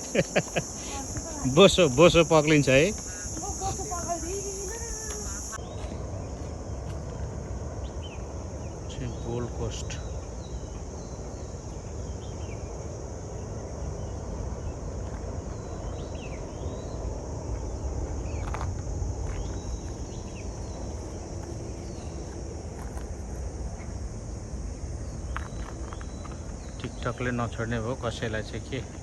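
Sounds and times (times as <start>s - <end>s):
insect chorus: 0.0s - 29.0s
bird chirps: 0.6s - 6.0s.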